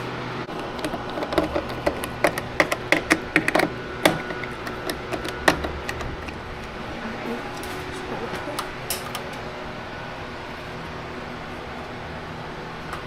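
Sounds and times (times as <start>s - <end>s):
steady low hum: 0.0s - 13.0s
metal tools clicking and tapping: 0.6s - 6.4s.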